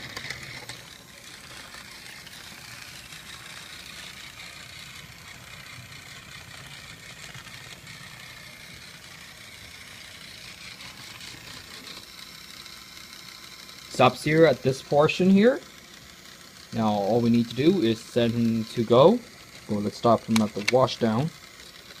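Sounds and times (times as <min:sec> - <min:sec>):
toy train motor whirring: 0:00.0 - 0:22.0
toy train wheels rattling: 0:00.0 - 0:22.0.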